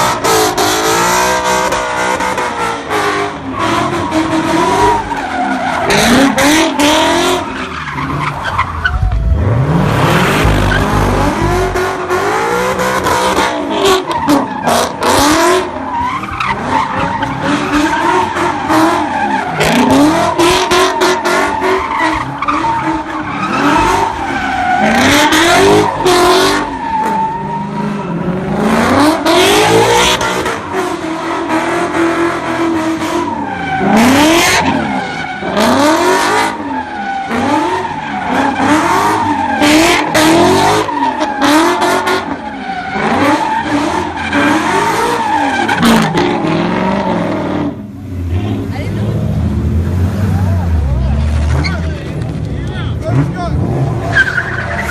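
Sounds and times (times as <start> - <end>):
car engines revving: 0.0 - 54.9
tyres squealing: 50.4 - 54.9.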